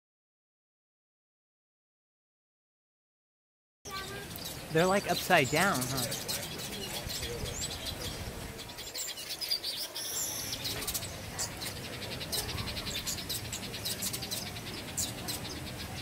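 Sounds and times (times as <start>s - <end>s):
small birds chirping: 3.9s - 16.0s.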